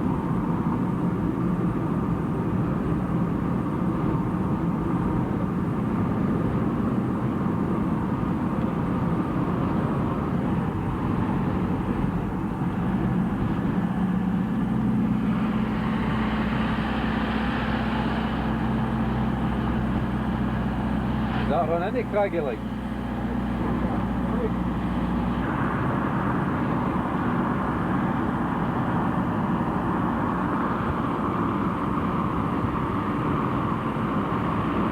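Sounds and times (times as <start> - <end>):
vehicle engine and road drone: 0.0 - 34.9.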